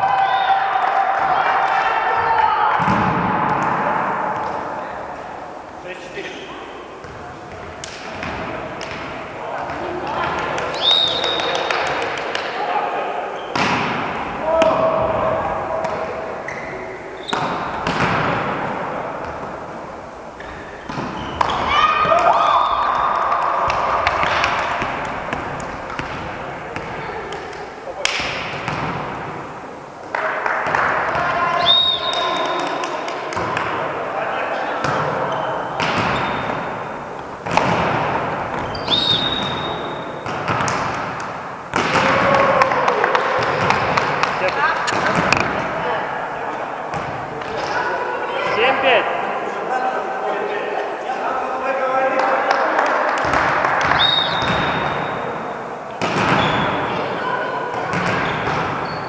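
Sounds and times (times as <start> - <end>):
volleyball slaps with echo: 0.0 - 4.8, 7.0 - 12.6, 13.5 - 16.4, 17.2 - 19.7, 20.4 - 33.9, 34.8 - 45.9, 46.9 - 48.6, 52.4 - 55.2, 56.0 - 57.0, 57.7 - 59.0.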